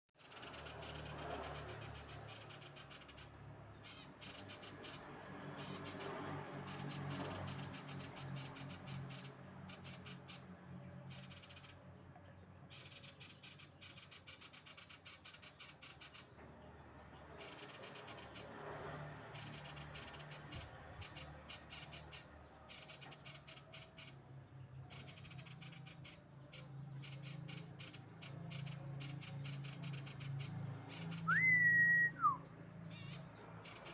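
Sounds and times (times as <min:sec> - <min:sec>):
bird twittering: 0:00.2 - 0:05.0, 0:11.1 - 0:11.8, 0:12.7 - 0:16.3, 0:17.4 - 0:18.5, 0:19.4 - 0:24.2, 0:24.8 - 0:33.9.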